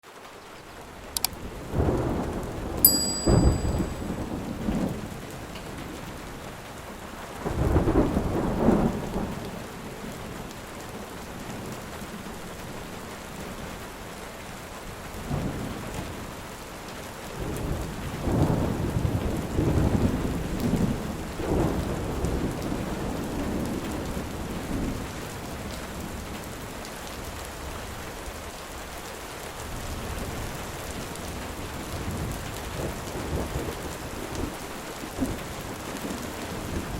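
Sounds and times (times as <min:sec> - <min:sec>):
steady rain hiss: 0:00.0 - 0:36.9
rolling thunder: 0:01.4 - 0:02.8, 0:03.4 - 0:06.1, 0:07.4 - 0:10.4, 0:17.4 - 0:26.2.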